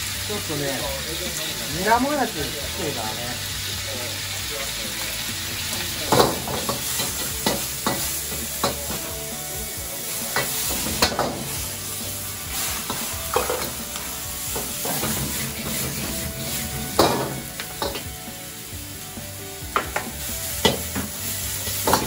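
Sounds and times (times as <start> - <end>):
meat sizzling in a wok: 0.0 - 22.0
metal ladle clanking on pan: 17.0 - 18.1.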